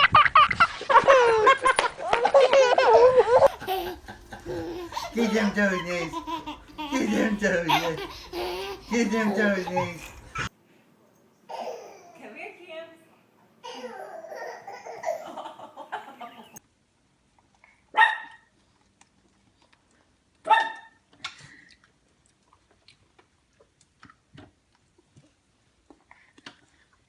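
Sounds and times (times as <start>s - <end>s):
dog barking: 18.0s - 18.5s, 20.4s - 21.0s.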